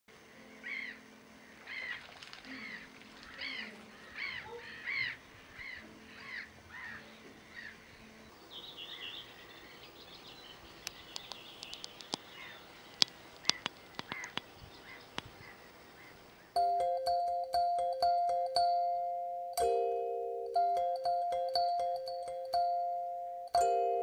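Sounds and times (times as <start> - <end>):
birds calling harshly: 0.6 - 16.6
bird chattering: 1.7 - 16.6.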